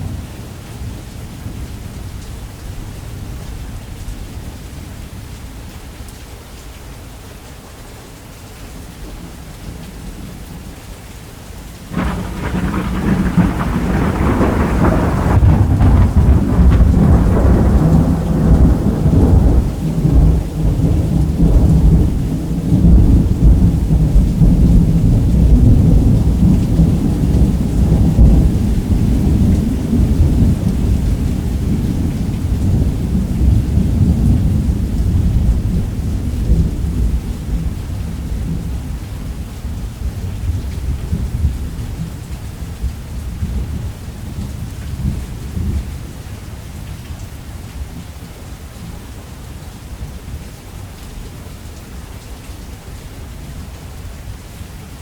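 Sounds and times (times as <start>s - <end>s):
heavy rain on a roof: 0.0s - 55.0s
thunder crack and rumble: 11.9s - 38.9s.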